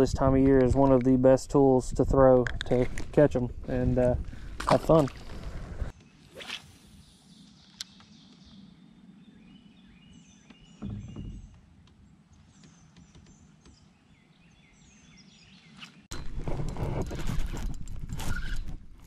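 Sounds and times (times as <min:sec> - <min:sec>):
small birds chirping: 0:05.9 - 0:16.1
low thump: 0:10.8 - 0:11.7.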